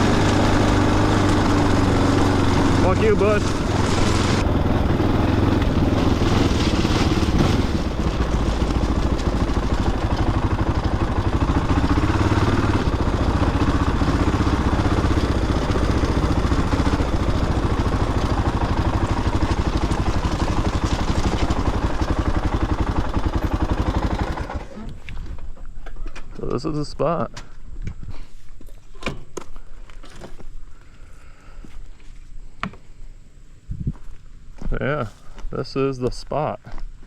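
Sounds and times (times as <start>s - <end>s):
dirt bike engine chugging: 0.0s - 25.4s.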